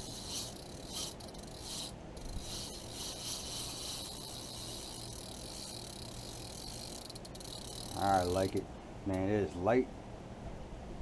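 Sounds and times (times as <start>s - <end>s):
fishing reel whirring: 0.0s - 8.6s.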